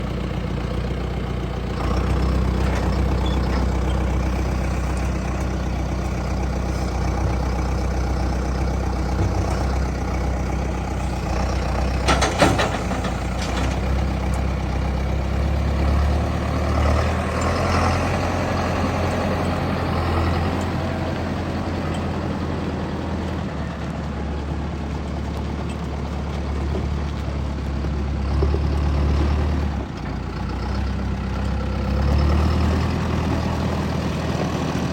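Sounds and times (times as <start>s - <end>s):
tractor diesel engine idling: 0.0s - 34.9s
rattle of clicks: 9.1s - 14.6s.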